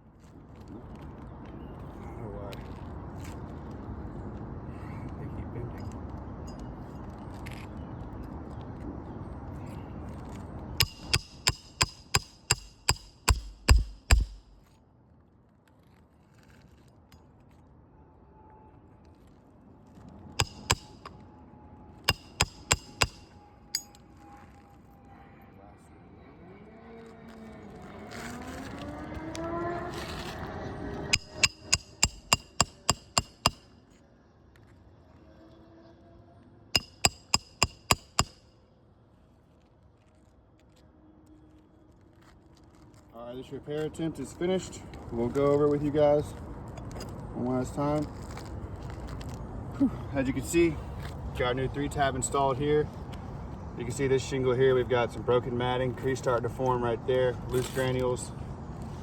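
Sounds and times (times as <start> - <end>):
hammer driving nail: 10.8 - 14.7, 20.4 - 21.1, 22.1 - 23.9, 31.1 - 33.7, 36.8 - 38.4.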